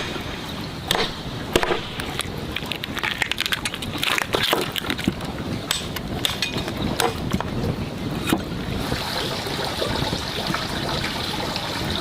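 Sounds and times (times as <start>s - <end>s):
water splashing and sloshing: 0.0s - 12.0s
clicks and knocks in water: 0.9s - 7.5s.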